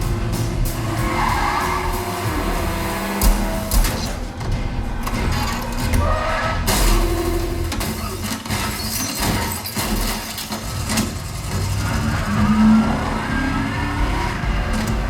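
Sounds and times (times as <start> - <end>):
sharp impacts: 0.0 - 12.8
car engine revving: 0.0 - 15.0
deep rumble: 10.7 - 15.0.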